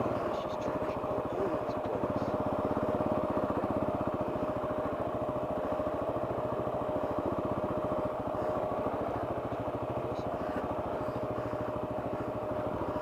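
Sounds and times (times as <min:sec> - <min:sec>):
motorcycle engine pulsing: 0:00.0 - 0:13.0
thin steady whine: 0:00.0 - 0:13.0.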